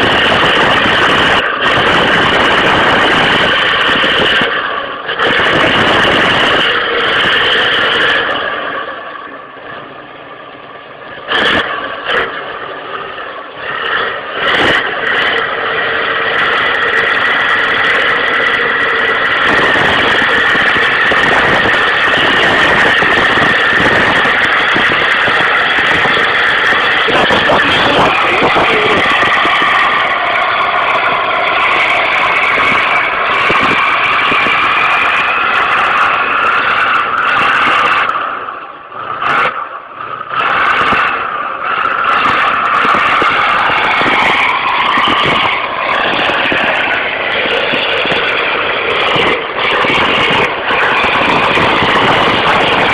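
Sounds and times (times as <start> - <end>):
vehicle road and engine noise: 0.0 - 52.9
steady high tone: 16.4 - 38.8.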